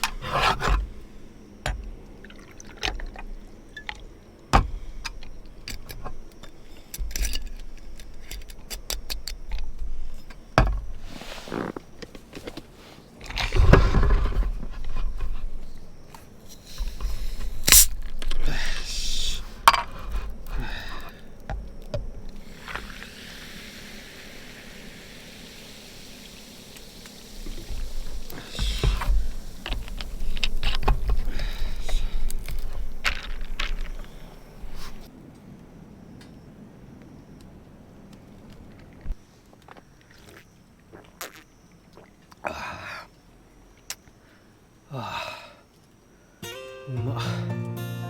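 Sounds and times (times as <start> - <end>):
rustling: 9.6 - 23.0, 27.2 - 35.1.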